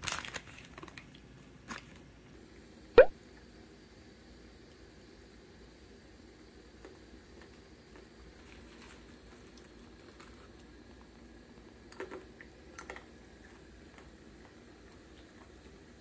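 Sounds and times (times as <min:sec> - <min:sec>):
child crunching dry noodles: 0:00.0 - 0:02.0.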